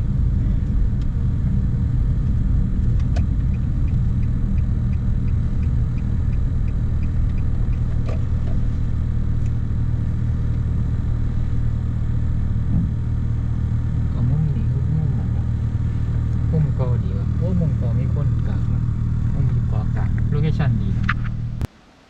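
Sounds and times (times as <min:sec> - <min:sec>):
vehicle engine humming: 0:00.0 - 0:22.0
faint regular ticking: 0:02.2 - 0:10.7.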